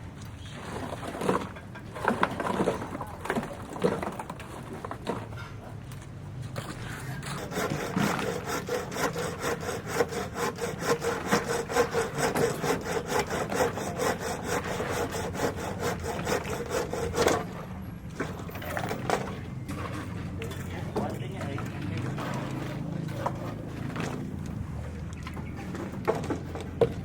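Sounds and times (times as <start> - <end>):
hand saw cutting: 6.8 - 17.6.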